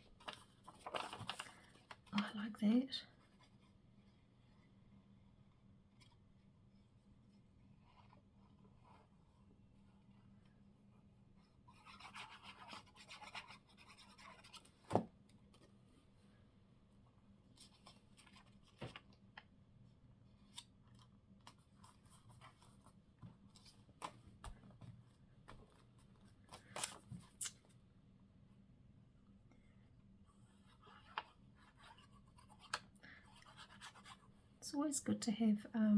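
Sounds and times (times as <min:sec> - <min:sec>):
small clicks and taps of paper: 0:31.9 - 0:32.9.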